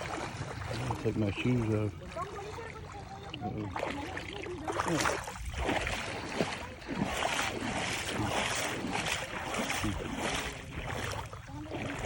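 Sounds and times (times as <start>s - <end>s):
small waves washing on beach: 0.0s - 12.0s
wind buffeting microphone: 4.7s - 12.0s.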